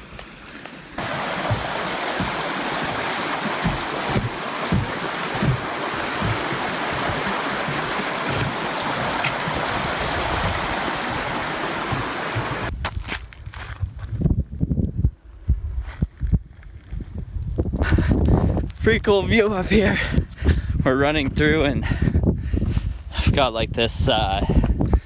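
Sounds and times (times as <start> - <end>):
low thuds: 1.0 - 12.7
stream water rushing: 1.0 - 12.7.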